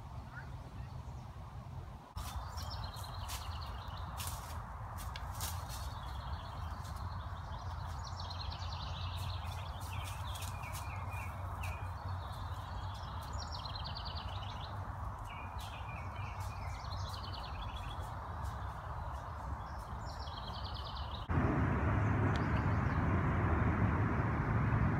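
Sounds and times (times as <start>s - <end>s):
low outdoor rumble: 20.9s - 24.9s.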